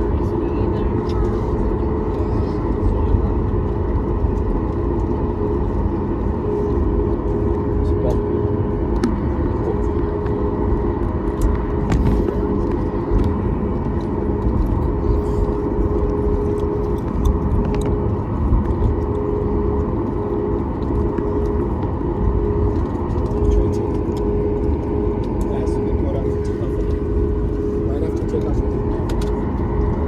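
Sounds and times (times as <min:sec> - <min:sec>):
airplane cabin engine rumble: 0:00.0 - 0:30.0
steady hum tone: 0:00.0 - 0:30.0.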